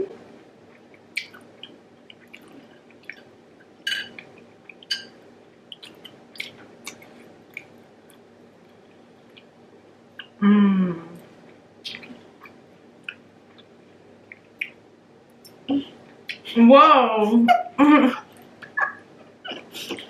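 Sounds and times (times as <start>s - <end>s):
wet chewing and mouth smacking: 0.7s - 3.3s, 4.0s - 9.5s, 11.8s - 14.8s
person humming mm: 10.4s - 11.2s.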